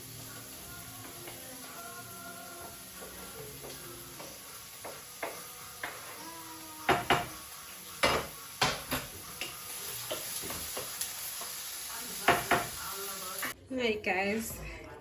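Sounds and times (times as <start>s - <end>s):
faint sizzle: 0.0s - 13.6s
spoon knocking against pot: 6.9s - 7.4s.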